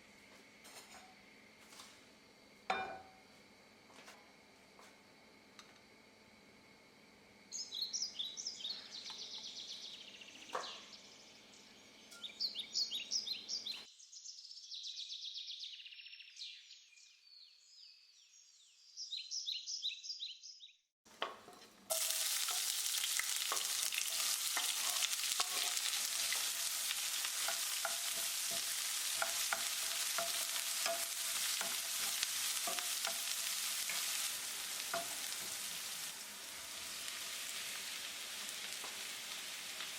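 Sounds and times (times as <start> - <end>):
birds chirping: 7.6 - 20.8
food sizzling in hot oil: 21.1 - 39.9.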